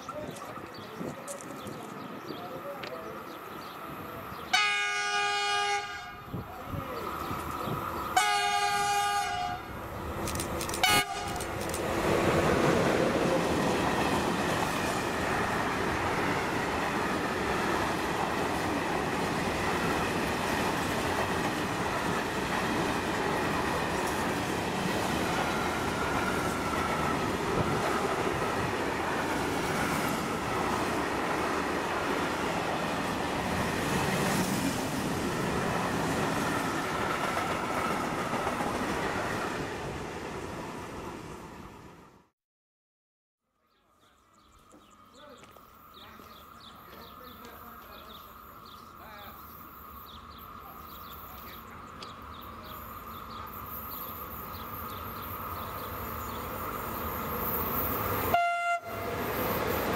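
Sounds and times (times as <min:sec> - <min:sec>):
train horn blasts: 0:04.5 - 0:06.3, 0:08.2 - 0:09.7, 0:10.8 - 0:11.4, 0:58.3 - 0:59.3
train wheels rumbling and rattling: 0:09.8 - 0:40.2.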